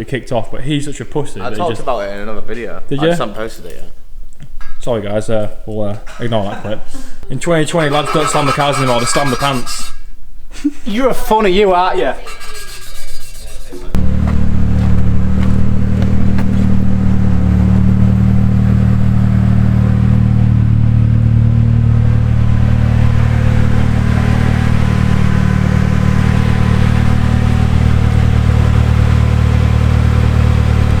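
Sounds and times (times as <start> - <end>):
car engine running steadily: 14.0 - 31.0.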